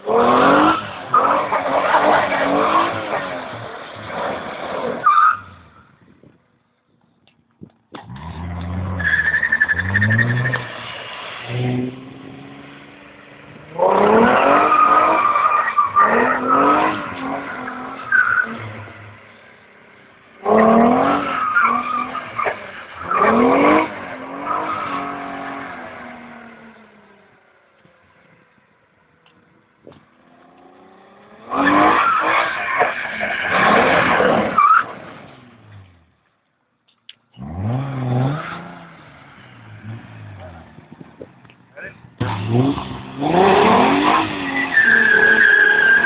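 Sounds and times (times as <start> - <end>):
car engine revving: 0.0 - 5.8, 7.9 - 27.5, 37.3 - 46.0.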